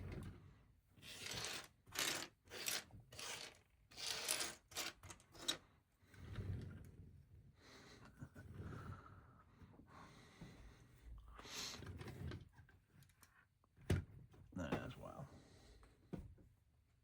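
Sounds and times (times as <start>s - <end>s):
plastic toy bricks rattling: 1.1s - 5.6s.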